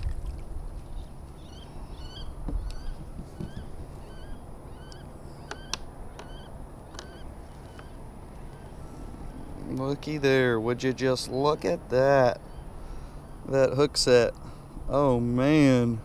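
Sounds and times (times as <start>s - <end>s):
bird chirping: 0.8s - 10.0s.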